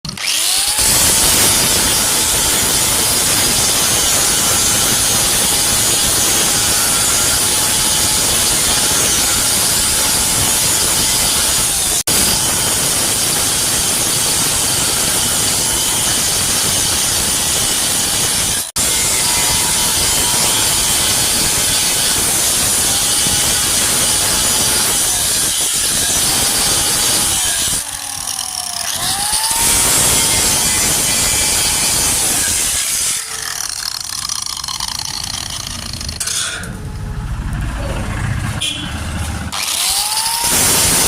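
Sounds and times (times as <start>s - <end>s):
welding arc hissing: 39.8s - 41.0s.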